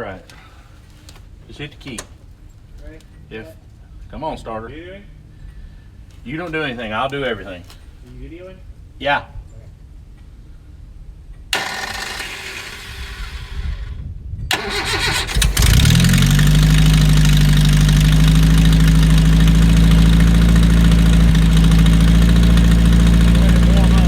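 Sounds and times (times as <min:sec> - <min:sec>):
car engine idling: 0:11.6 - 0:24.0
engine starter cranking: 0:11.6 - 0:24.0.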